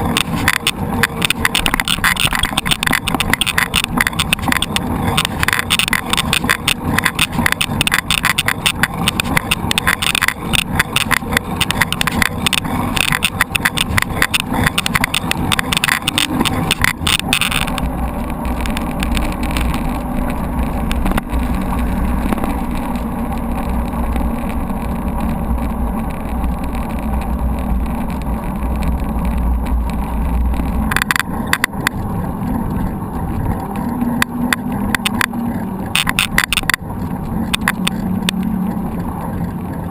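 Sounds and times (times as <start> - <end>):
bike tyres rumbling: 0.0 - 39.9
mountain bike rattling: 0.0 - 39.9.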